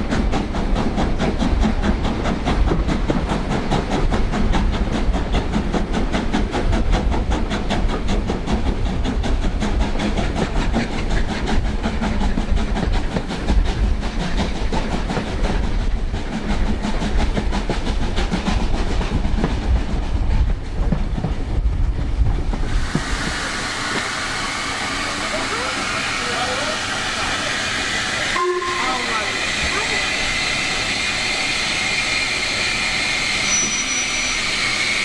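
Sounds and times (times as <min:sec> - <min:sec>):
steam locomotive beat: 0:00.0 - 0:35.0
wheels rumbling on rail: 0:00.0 - 0:35.0
steady steam hiss: 0:22.5 - 0:35.0.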